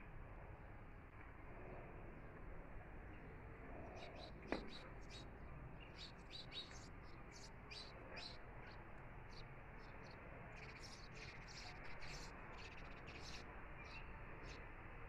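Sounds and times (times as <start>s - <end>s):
faint background hum: 0.0s - 15.0s
small birds chirping: 3.2s - 14.7s.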